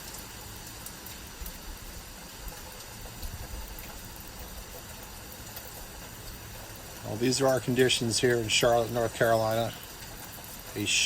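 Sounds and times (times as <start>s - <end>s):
rain pouring: 0.0s - 11.0s
raindrop ticks: 0.0s - 11.0s.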